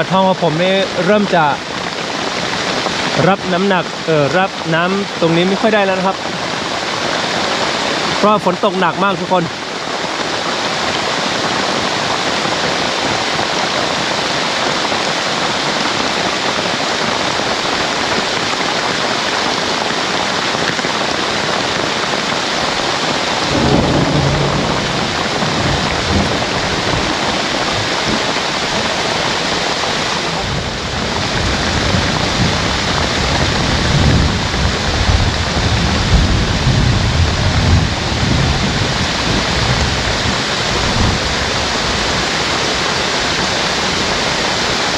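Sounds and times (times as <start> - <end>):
heavy rain on a roof: 0.0 - 44.9
low rumbling: 23.3 - 28.2.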